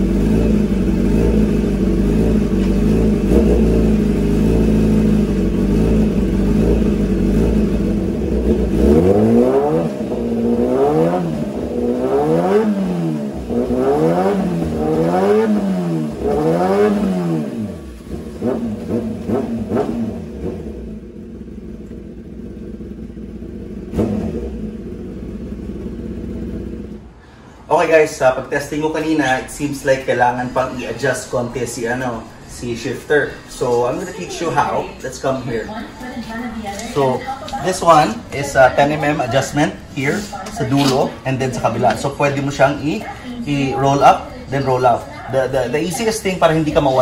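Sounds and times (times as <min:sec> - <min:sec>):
motorcycle engine revving: 0:00.0 - 0:27.2, 0:29.4 - 0:47.0.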